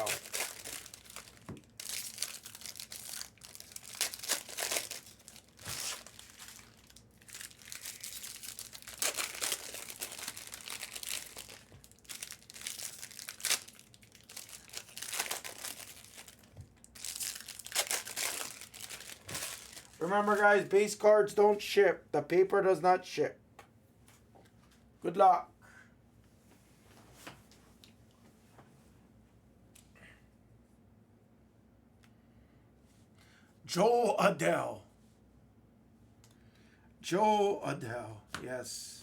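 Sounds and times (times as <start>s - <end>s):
card wrappers crinkling and tearing: 0.0s - 20.9s.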